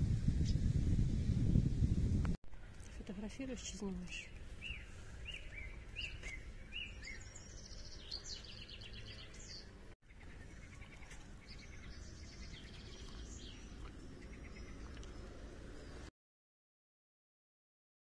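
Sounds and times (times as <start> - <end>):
songbirds chirping and singing: 3.7 - 16.1.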